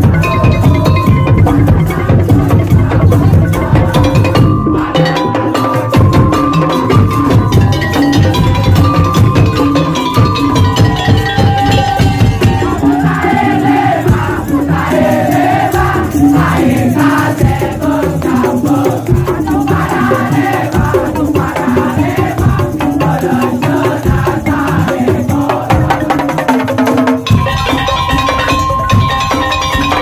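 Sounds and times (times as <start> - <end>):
wavering melody line: 0.0 - 16.8
percussion ensemble playing: 0.0 - 30.0.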